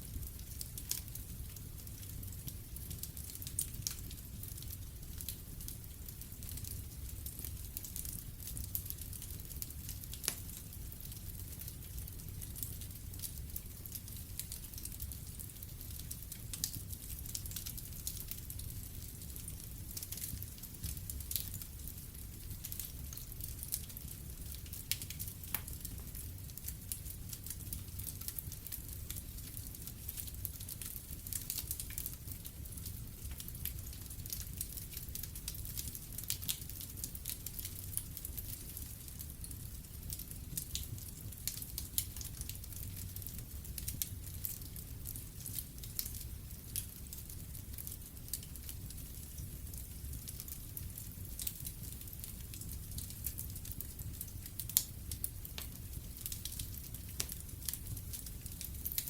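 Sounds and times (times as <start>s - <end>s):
low rumble of flames: 0.0s - 59.0s
wood fire crackling and popping: 0.0s - 59.0s.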